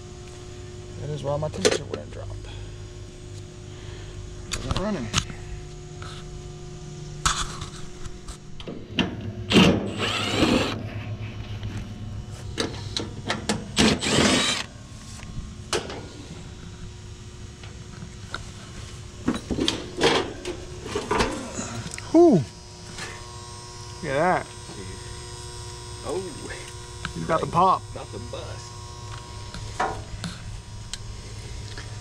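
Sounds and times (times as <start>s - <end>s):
steady low hum: 0.0s - 32.0s
cordless drill whining: 9.5s - 10.8s, 13.8s - 14.7s.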